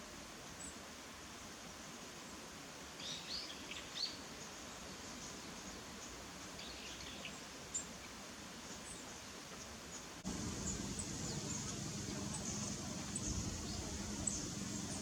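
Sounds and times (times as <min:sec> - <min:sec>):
steady background hiss: 0:00.0 - 0:15.0
small bird chirping: 0:08.7 - 0:15.0.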